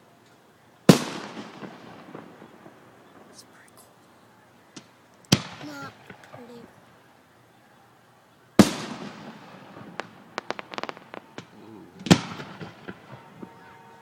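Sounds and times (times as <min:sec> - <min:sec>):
fireworks crackling pops: 0:00.2 - 0:07.0, 0:08.6 - 0:14.0
fireworks booming: 0:00.9 - 0:04.0, 0:04.7 - 0:06.9, 0:08.6 - 0:14.0.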